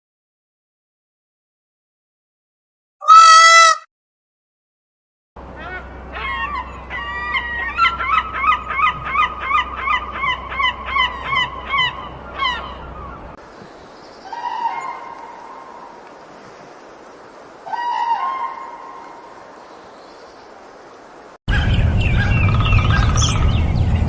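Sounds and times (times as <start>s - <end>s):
animal honk-like calls: 3.0s - 3.9s
animal wavering call: 14.3s - 15.6s.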